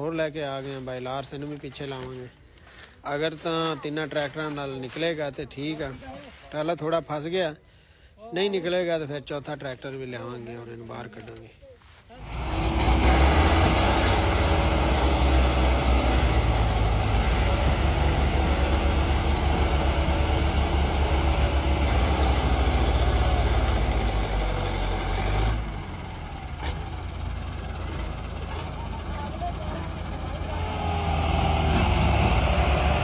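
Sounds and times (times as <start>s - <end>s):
tractor engines straining: 9.8s - 33.0s.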